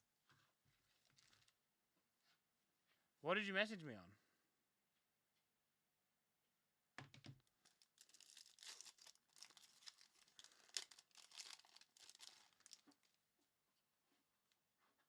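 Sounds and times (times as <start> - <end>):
foil pack tearing and crinkling: 7.8 - 13.0.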